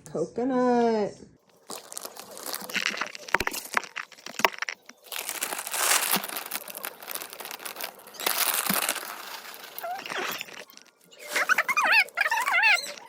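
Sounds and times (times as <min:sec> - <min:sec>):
granola rustling: 0:01.5 - 0:13.0
plastic bag crinkling: 0:01.5 - 0:13.0.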